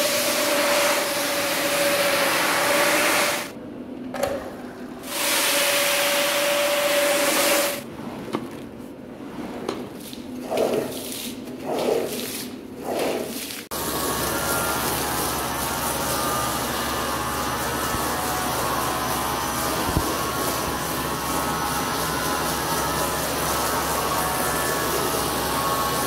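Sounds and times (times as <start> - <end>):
rug-cleaning machine hissing: 13.7 - 26.0.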